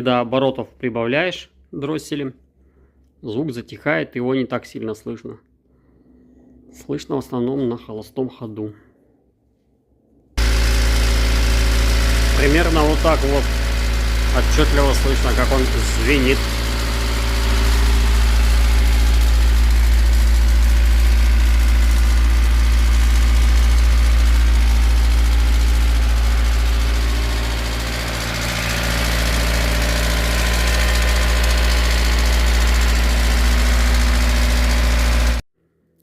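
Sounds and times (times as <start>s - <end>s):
engine idling with ringing clatter: 10.4s - 35.4s.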